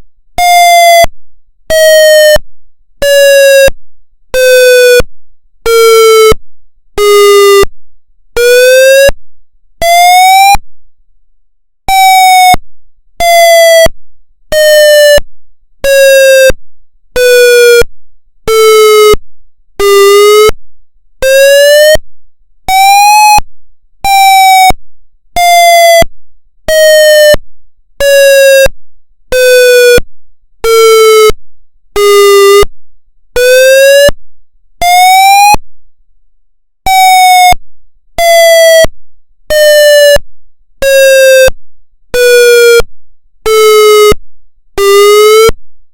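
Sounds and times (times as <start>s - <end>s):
pulsing wailing siren: 9.8s - 10.6s, 11.9s - 12.6s, 22.7s - 23.4s, 24.1s - 24.8s, 34.8s - 35.6s, 36.9s - 37.6s, 38.2s - 38.9s, 39.5s - 40.2s, 40.9s - 41.5s, 43.5s - 44.2s, 44.8s - 45.5s.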